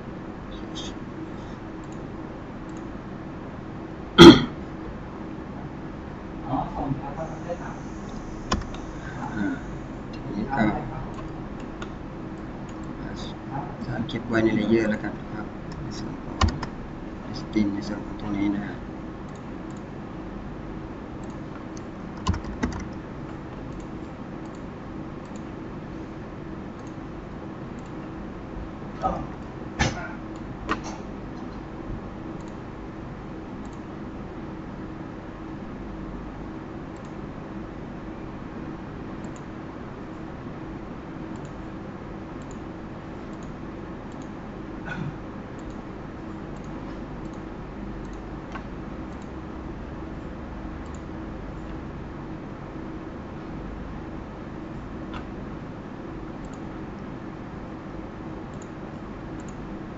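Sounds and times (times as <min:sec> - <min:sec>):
electrical hum: 0:00.0 - 0:59.9
computer clicks: 0:01.8 - 0:02.1, 0:02.7 - 0:02.9, 0:08.0 - 0:09.0, 0:11.1 - 0:13.0, 0:16.4 - 0:16.8, 0:19.2 - 0:19.9, 0:21.2 - 0:23.0, 0:23.7 - 0:25.6, 0:26.7 - 0:27.0, 0:27.8 - 0:28.0, 0:32.4 - 0:32.6, 0:33.6 - 0:33.9, 0:36.9 - 0:37.2, 0:39.2 - 0:39.5, 0:41.3 - 0:41.7, 0:42.4 - 0:44.4, 0:45.5 - 0:49.4, 0:56.4 - 0:57.0, 0:58.5 - 0:59.7.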